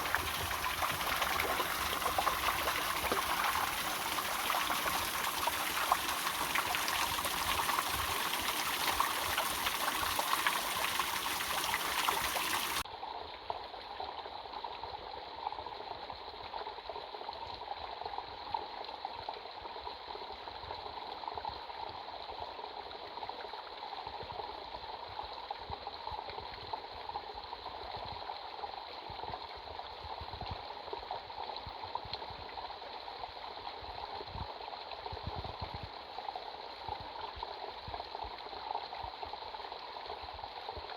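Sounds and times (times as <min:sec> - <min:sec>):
waterfall running water: 0:00.0 - 0:12.8.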